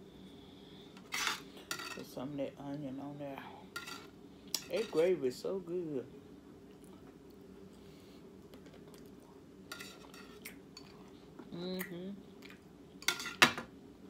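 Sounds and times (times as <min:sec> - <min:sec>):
faint steady hum: 0:00.0 - 0:14.0
cutlery clinking on plate: 0:13.0 - 0:13.7.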